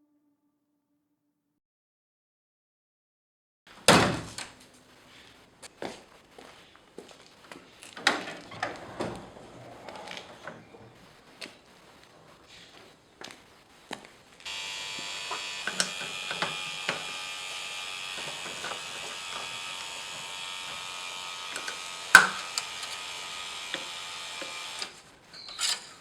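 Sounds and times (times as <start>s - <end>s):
small electric motor buzzing: 14.4s - 25.2s.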